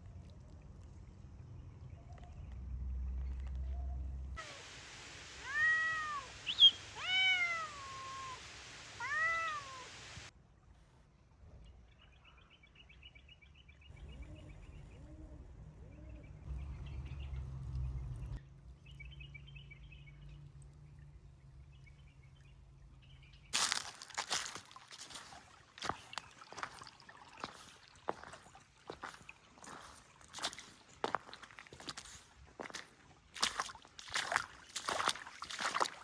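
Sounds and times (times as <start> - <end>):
cat meowing: 5.4 - 10.0.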